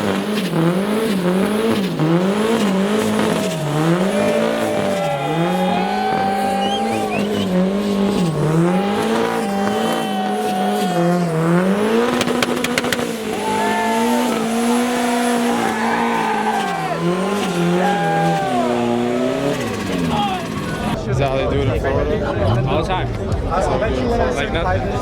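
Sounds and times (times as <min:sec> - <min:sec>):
car engine at high revs: 0:00.0 - 0:21.0
sharp exhaust crackles: 0:00.0 - 0:21.0
tyres squealing: 0:02.6 - 0:21.0.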